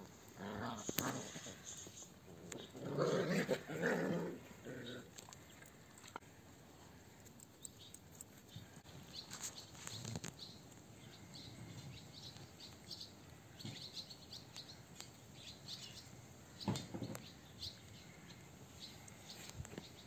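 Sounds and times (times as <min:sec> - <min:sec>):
small birds chirping: 0:04.4 - 0:20.0.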